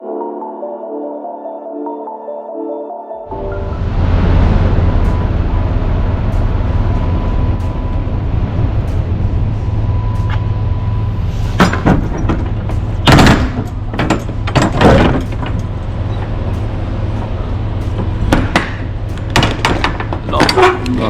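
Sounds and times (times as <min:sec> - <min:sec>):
low rumble: 0:03.3 - 0:20.4
metal door latch clanking: 0:11.6 - 0:16.2.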